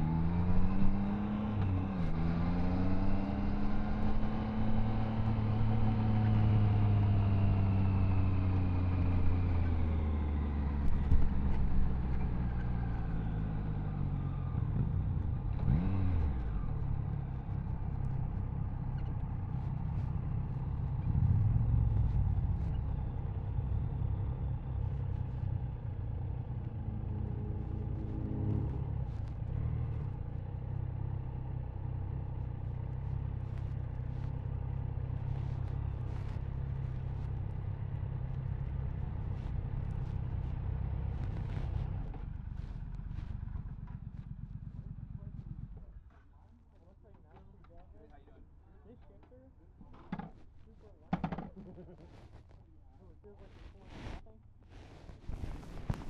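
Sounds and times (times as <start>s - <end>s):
motorcycle engine slowing down: 32.4s - 45.9s.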